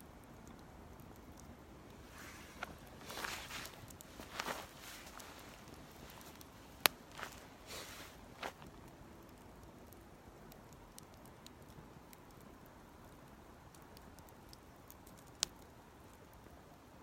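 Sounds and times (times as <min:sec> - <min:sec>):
campfire crackling faintly: 0:00.0 - 0:17.0.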